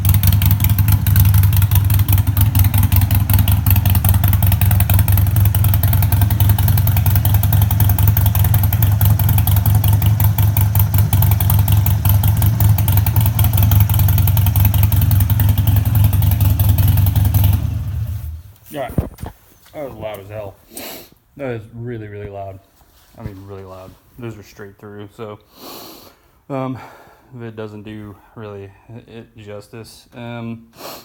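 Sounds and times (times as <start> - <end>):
motorcycle engine running loud: 0.0 - 18.5.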